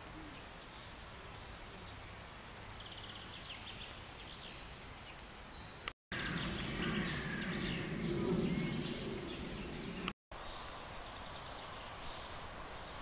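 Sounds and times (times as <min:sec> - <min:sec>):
small birds chirping: 0:00.0 - 0:13.0
low outdoor rumble: 0:06.2 - 0:10.1.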